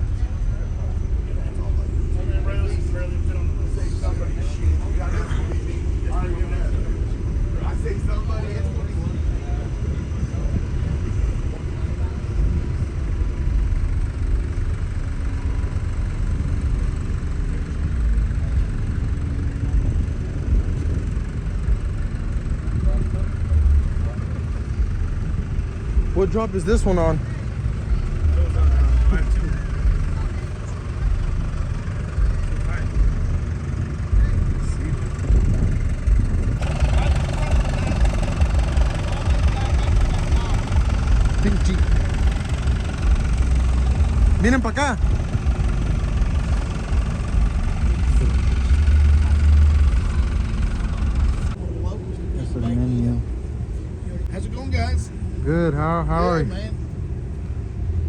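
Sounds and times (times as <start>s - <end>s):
faint voices: 0.0s - 56.8s
steady wide noise: 0.0s - 58.0s
truck engines idling: 0.0s - 58.0s.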